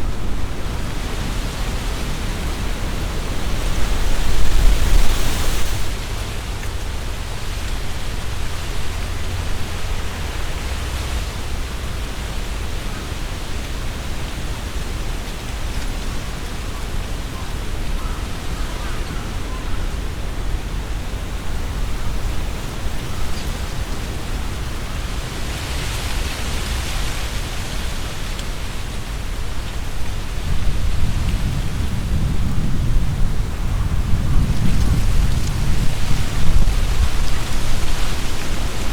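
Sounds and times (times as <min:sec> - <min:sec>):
wind buffeting microphone: 0:00.0 - 0:38.9
wind rustling tree leaves: 0:00.0 - 0:38.9.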